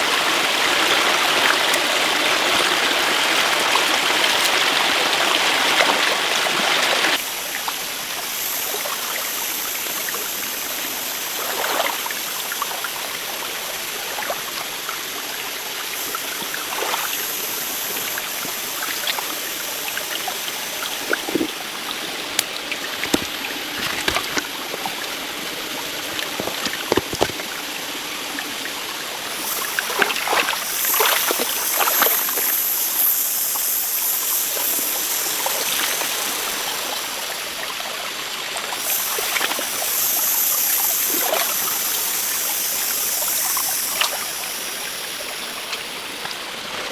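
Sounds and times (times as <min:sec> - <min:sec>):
stream running water: 0:00.0 - 0:46.9
light knocks and scrapes: 0:23.0 - 0:25.2, 0:25.8 - 0:27.5.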